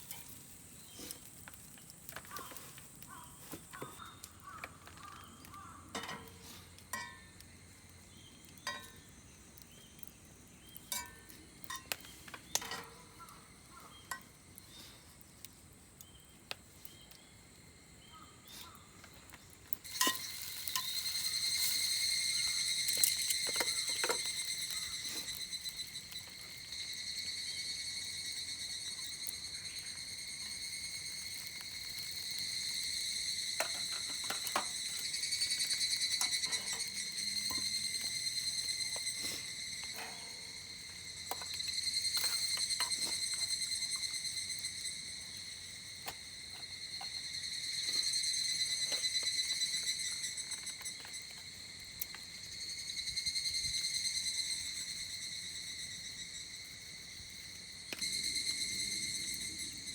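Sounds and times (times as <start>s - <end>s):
faint sizzle: 0.0s - 56.4s
metal cookware clinking: 5.9s - 7.3s, 8.6s - 9.0s, 10.9s - 13.2s, 19.9s - 21.0s
high-pitched insect drone: 19.8s - 59.9s.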